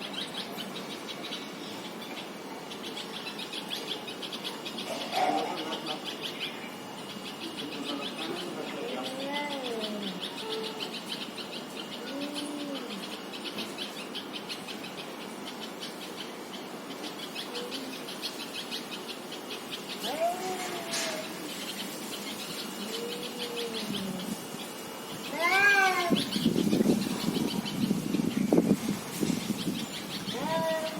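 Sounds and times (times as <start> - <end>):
faint high chirping: 0.0 - 30.9
cats yowling: 8.3 - 10.8, 12.0 - 13.0, 20.0 - 21.5, 22.8 - 24.4, 25.3 - 26.4, 30.3 - 30.9.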